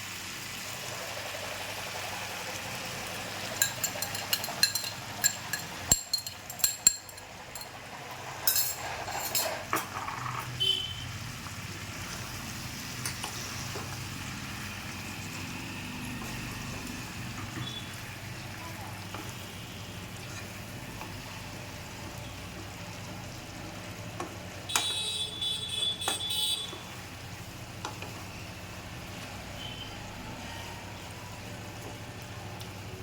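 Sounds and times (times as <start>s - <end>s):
chicken sizzling in a pan: 0.0s - 5.8s, 11.1s - 25.6s
metal spoon scraping a pan: 3.6s - 10.6s.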